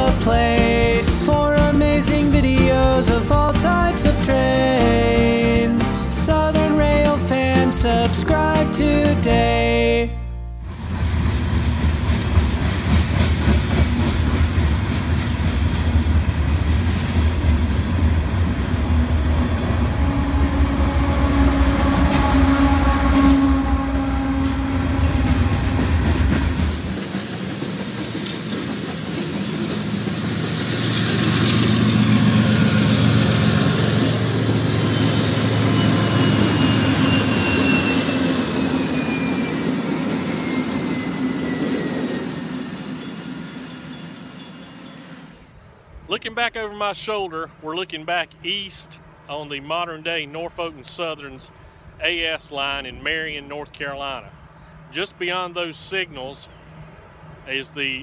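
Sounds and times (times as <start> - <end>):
deep train rumble: 0.0 - 58.0
diesel locomotives passing: 0.0 - 58.0
train wheels clacking over rail joints: 11.2 - 18.7, 24.4 - 37.8, 38.6 - 45.2.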